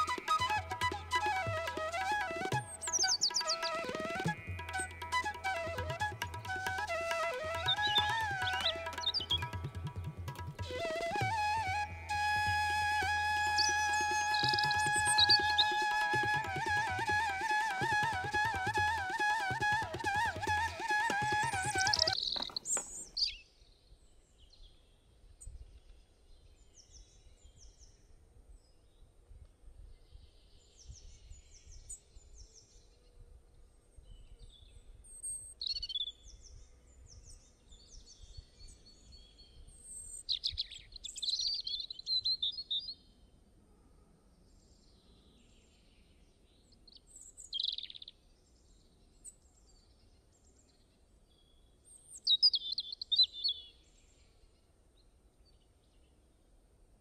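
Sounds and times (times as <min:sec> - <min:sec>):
bird trills: 0:00.0 - 0:11.2, 0:13.4 - 0:17.1
small birds chirping: 0:02.0 - 0:10.6, 0:21.2 - 0:23.4.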